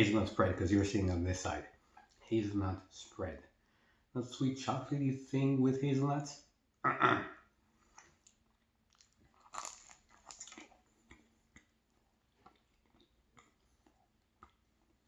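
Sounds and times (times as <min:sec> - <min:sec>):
soft chewing clicks: 0:07.8 - 0:15.0
pastry crunching: 0:07.9 - 0:15.0.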